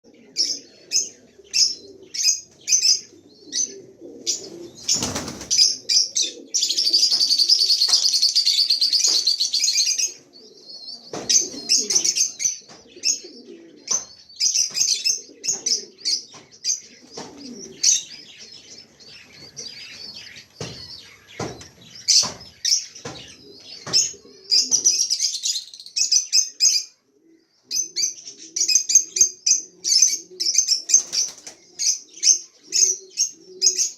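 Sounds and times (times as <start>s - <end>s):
lovebirds chirping: 0.1s - 33.9s
sharp knocks: 19.4s - 24.2s.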